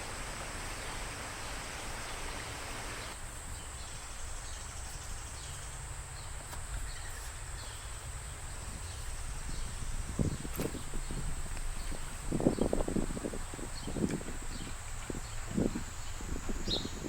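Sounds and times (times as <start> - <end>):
high-pitched insect chorus: 0.0 - 17.0
soft hiss: 0.0 - 17.0.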